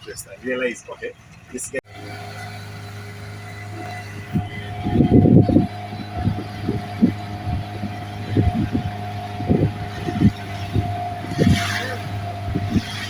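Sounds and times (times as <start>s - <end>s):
engine running: 0.0s - 13.0s
low thumps: 3.4s - 13.0s.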